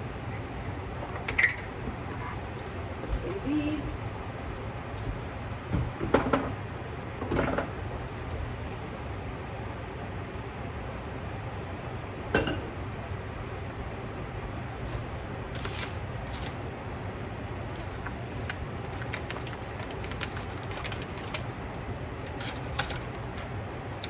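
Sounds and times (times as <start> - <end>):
steady low hum: 0.0 - 24.0
dishes clinking: 12.4 - 12.7.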